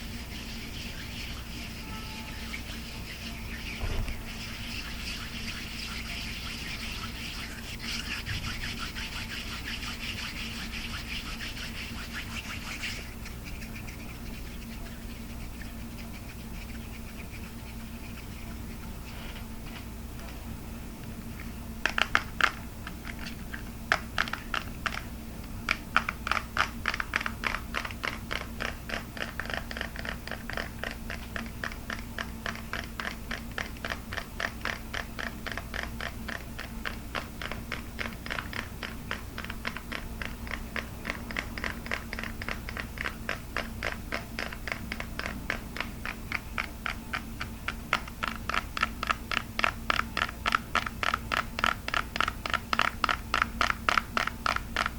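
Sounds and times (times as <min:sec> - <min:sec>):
fast tapping on hard plastic: 0:21.8 - 0:54.9.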